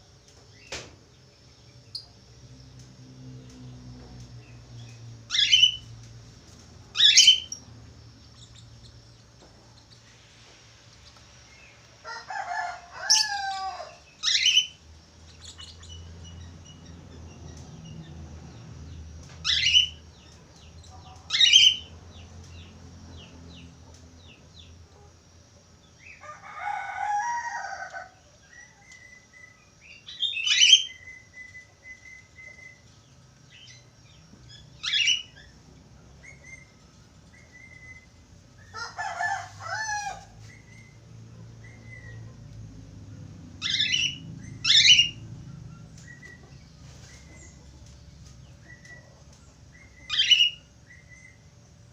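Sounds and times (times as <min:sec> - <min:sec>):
budgerigars chirping: 0:05.3 - 0:05.8, 0:06.9 - 0:07.6, 0:14.2 - 0:16.9, 0:19.5 - 0:20.0, 0:20.9 - 0:21.9, 0:34.6 - 0:35.5, 0:43.6 - 0:45.2, 0:49.9 - 0:51.4.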